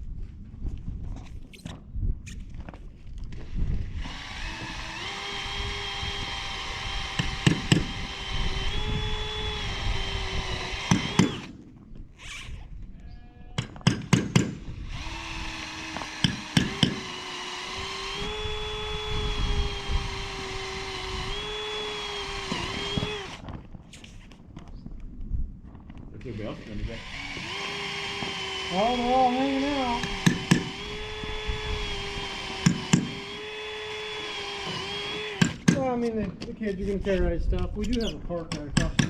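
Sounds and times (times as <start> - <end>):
power drill whining through metal: 3.3 - 11.6, 13.6 - 23.5, 26.2 - 35.8
sharp metallic knocks: 13.6 - 14.6.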